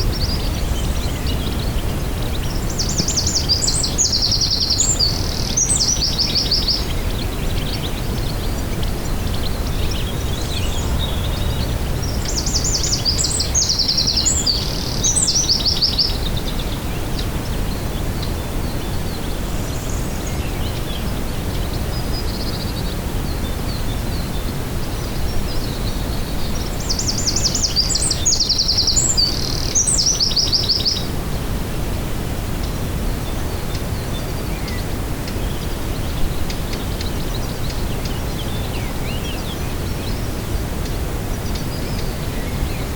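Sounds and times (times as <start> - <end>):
low rumble: 0.0 - 4.3, 8.0 - 15.0
songbird trilling: 0.0 - 16.2.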